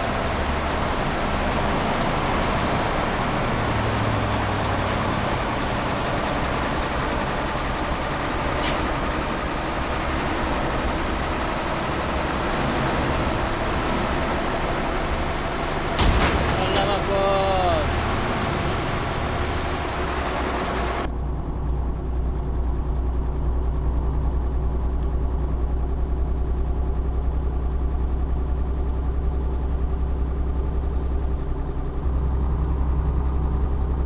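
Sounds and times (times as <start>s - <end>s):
road noise: 0.0s - 22.6s
truck engine running: 0.0s - 34.0s.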